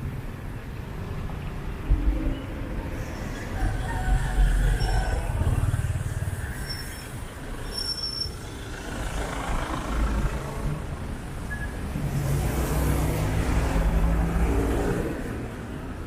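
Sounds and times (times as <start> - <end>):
traffic passing: 0.0 - 16.0
short high squeaks: 6.6 - 8.5.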